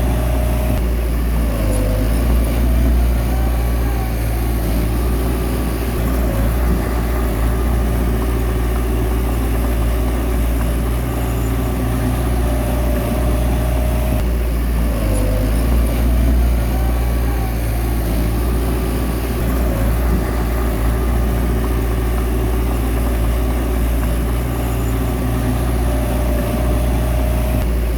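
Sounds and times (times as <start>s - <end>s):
bulldozer diesel engine droning: 0.0s - 27.9s.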